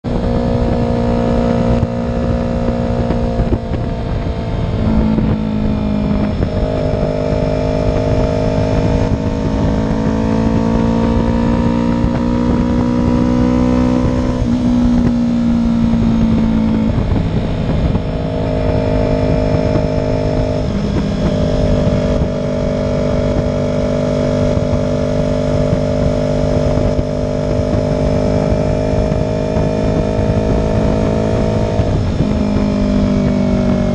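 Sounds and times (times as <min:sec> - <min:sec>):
low rumble: 0:00.0 - 0:25.0
motorcycle engines running: 0:00.0 - 0:33.9.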